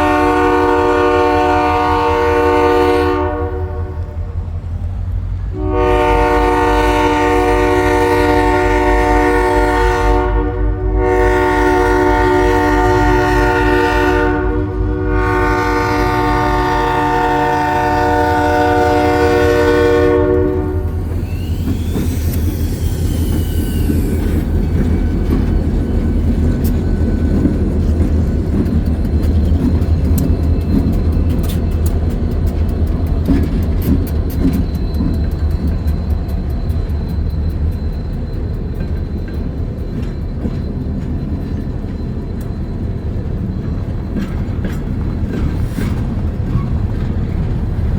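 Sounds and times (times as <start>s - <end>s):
train horn chord: 0.0s - 4.3s, 5.5s - 21.1s
diesel engines rumbling: 0.2s - 10.2s
wheels clicking over rail joints: 16.0s - 47.9s.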